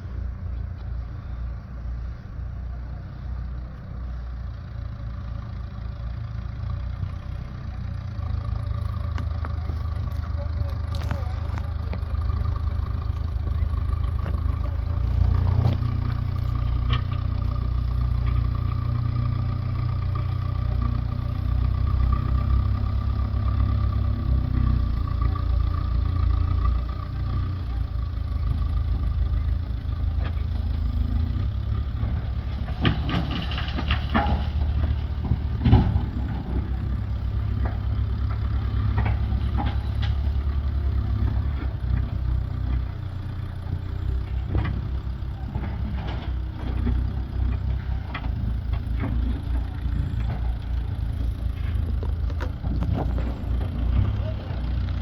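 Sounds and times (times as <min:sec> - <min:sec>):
engine idling rumble: 0:00.0 - 0:55.0
sharp knocks and clatter: 0:32.0 - 0:42.8, 0:44.2 - 0:55.0.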